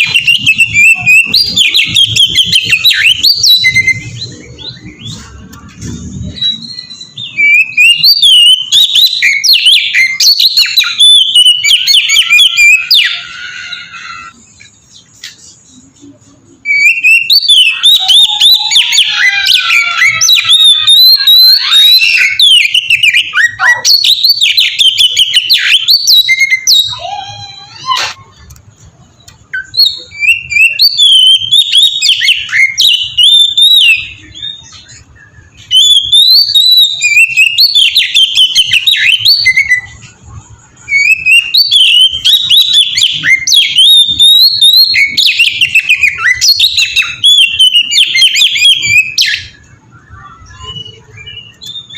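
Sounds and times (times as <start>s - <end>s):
songbird singing whistled phrases: 0.0s - 28.5s, 29.2s - 51.9s.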